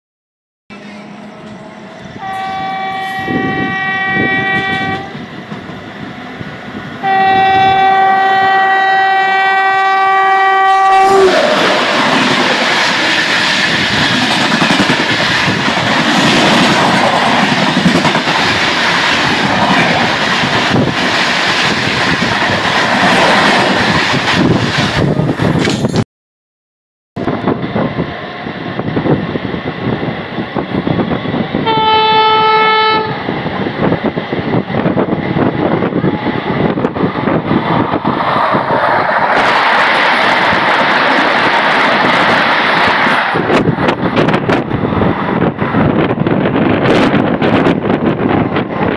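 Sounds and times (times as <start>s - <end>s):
train horn blasts: 0.7s - 5.2s, 7.0s - 11.6s, 31.6s - 33.3s
train passing at speed: 0.7s - 26.0s, 27.2s - 48.9s.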